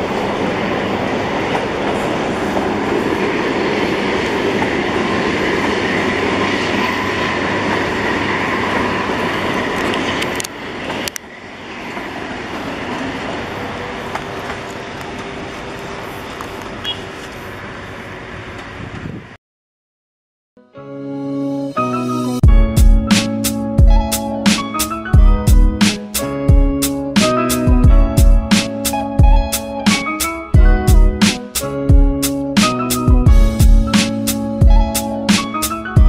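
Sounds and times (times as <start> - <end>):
train coaches rumbling over a bridge: 0.0 - 19.4.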